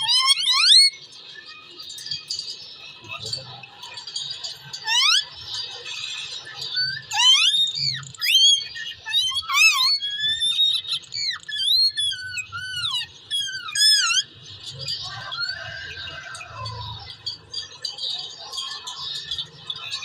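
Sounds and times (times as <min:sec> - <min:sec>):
parakeet squeaky whistled calls: 0:00.0 - 0:01.8, 0:04.7 - 0:16.9.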